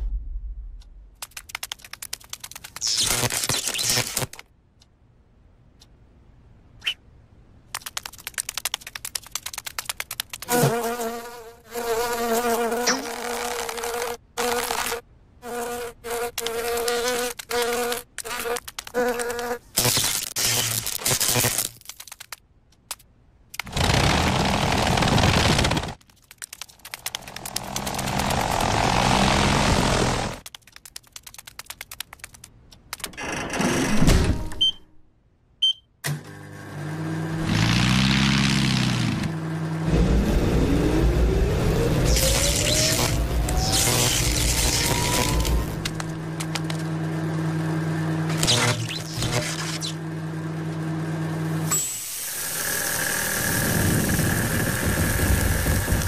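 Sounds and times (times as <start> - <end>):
quick clicks speeding up: 1.1 - 4.4, 7.7 - 10.6, 21.0 - 33.1, 40.9 - 46.8
faint rapid clicks: 1.1 - 4.9, 7.7 - 10.6, 16.4 - 19.4, 24.7 - 28.6, 30.4 - 33.1
cartoon insect wing buzz: 10.4 - 21.7, 37.4 - 46.1
propeller-like engine drone: 26.9 - 30.4, 38.4 - 49.0, 52.4 - 56.0.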